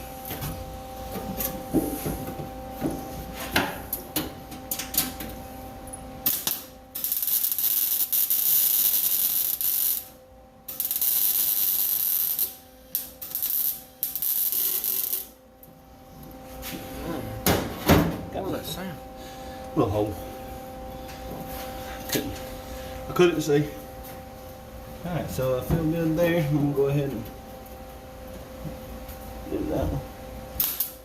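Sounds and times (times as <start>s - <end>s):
faint steady hum: 0.0s - 31.0s
arc welding crackling: 6.2s - 15.4s, 30.6s - 31.0s.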